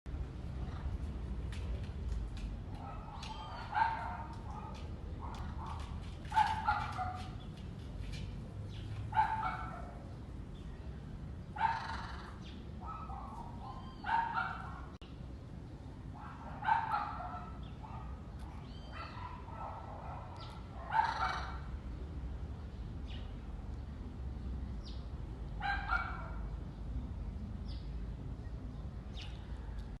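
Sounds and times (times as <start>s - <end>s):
harsh animal calls: 11.6s - 12.4s.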